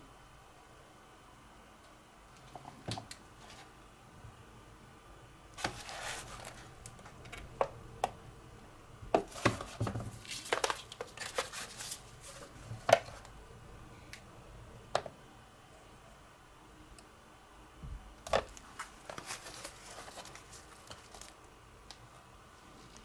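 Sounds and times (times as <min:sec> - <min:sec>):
plastic parts clicking and knocking: 0:18.2 - 0:21.3.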